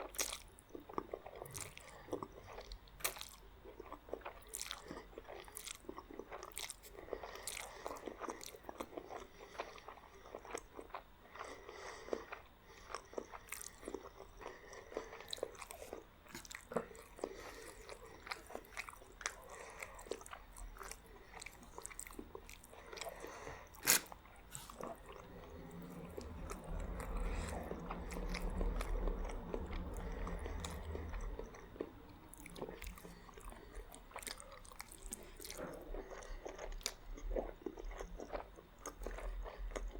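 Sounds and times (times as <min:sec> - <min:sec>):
chewing and crunching food: 0:00.0 - 0:39.9
low rumble: 0:24.7 - 0:34.1.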